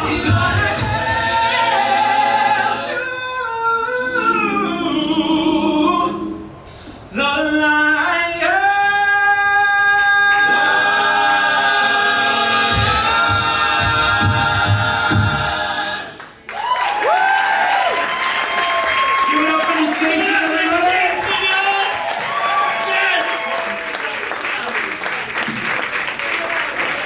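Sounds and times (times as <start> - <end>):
men singing in harmony: 0.0 - 6.4.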